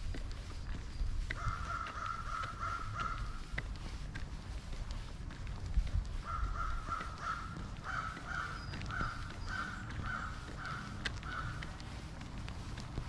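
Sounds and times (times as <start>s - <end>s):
bird calling: 1.4s - 3.5s, 6.2s - 11.8s.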